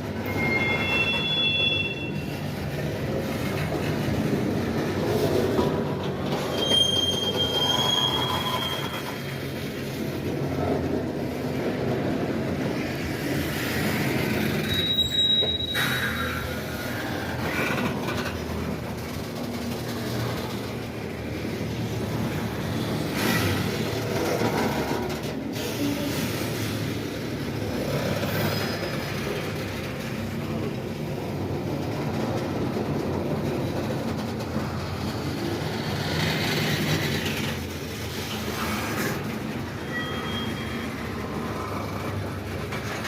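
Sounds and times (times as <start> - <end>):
high wheel squeal: 0.0 - 3.7, 6.2 - 9.8, 13.7 - 18.3, 38.2 - 42.3
railcar wheels rumbling on rails: 0.0 - 43.0.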